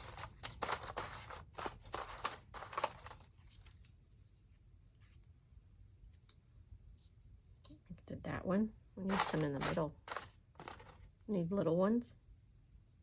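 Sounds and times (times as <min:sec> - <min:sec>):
paper rustling: 0:00.0 - 0:04.2, 0:09.1 - 0:11.1.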